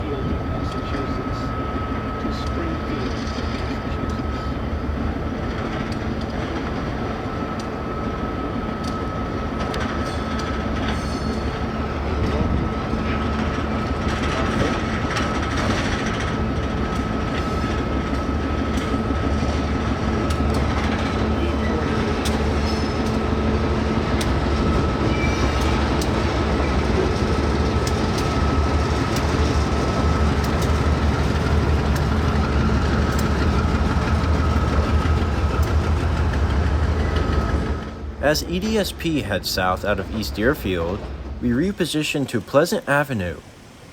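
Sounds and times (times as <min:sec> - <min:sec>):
locomotive rumble: 0:00.0 - 0:43.9
wheels clicking over rail joints: 0:05.4 - 0:37.9.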